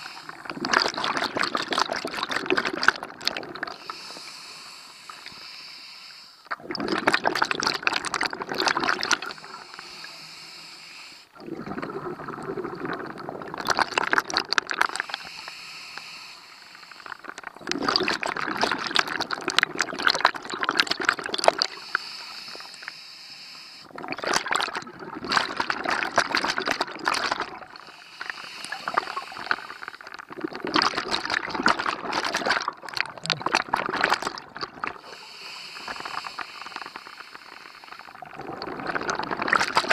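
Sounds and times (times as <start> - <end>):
regulator inhalations: 0.0 - 0.7, 3.7 - 6.5, 9.0 - 11.4, 14.9 - 17.4, 21.6 - 24.0, 27.8 - 30.2, 34.9 - 38.3
exhaled bubbles gurgling underwater: 0.0 - 5.4, 6.4 - 10.3, 11.3 - 15.4, 16.8 - 22.0, 23.9 - 39.9.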